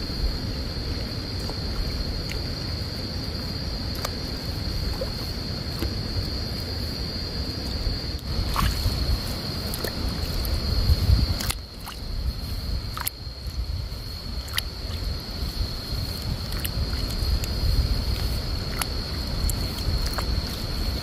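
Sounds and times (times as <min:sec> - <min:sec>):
wind rumbling on microphone: 0:00.0 - 0:21.0
sharp snaps: 0:03.9 - 0:04.2.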